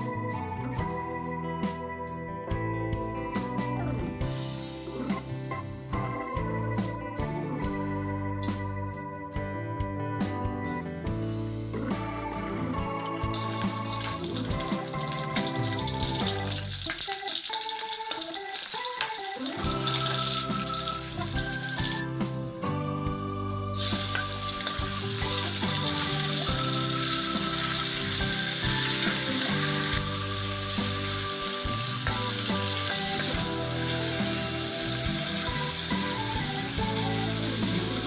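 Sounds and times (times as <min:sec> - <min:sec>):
background music: 0:00.0 - 0:38.0
food sizzling in hot oil: 0:13.2 - 0:22.1, 0:23.8 - 0:38.0.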